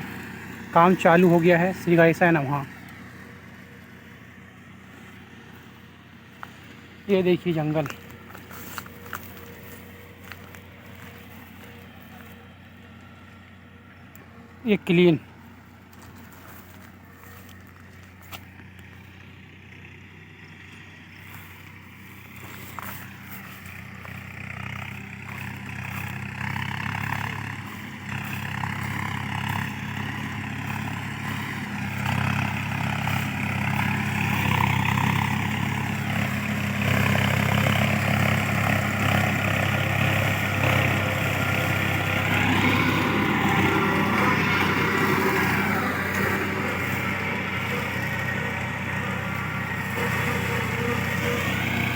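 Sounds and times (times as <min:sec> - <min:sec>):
mulcher grinding brush: 0:00.0 - 0:19.3, 0:20.7 - 0:51.9
tractor diesel engine hum: 0:00.0 - 0:51.9.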